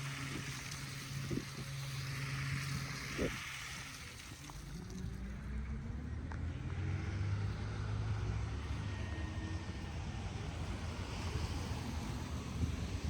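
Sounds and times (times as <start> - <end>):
car driving past: 4.4 - 13.0.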